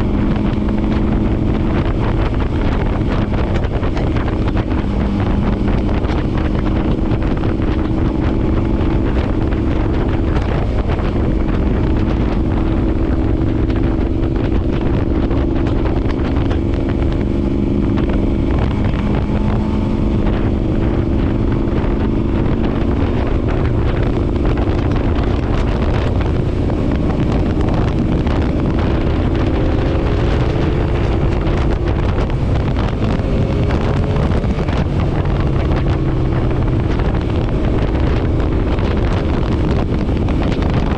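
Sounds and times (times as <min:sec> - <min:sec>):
motorcycle engine running: 0:00.0 - 0:40.9
wind buffeting microphone: 0:00.0 - 0:40.9.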